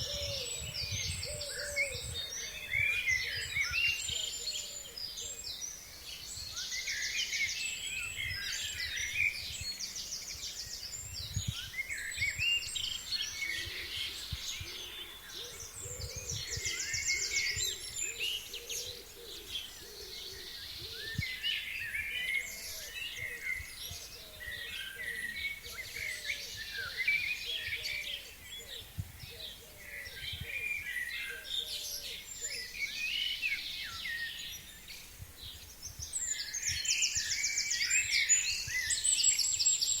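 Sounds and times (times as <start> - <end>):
wind rumble on microphone: 0.0 - 4.3, 8.0 - 18.2, 28.6 - 30.7
forest birds singing: 0.0 - 40.0.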